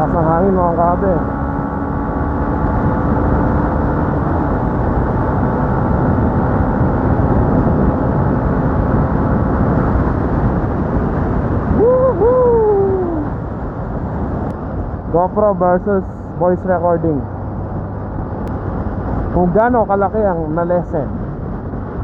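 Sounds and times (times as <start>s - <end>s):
motorcycle engine drone: 0.0s - 22.0s
wind rush and road noise: 0.0s - 22.0s.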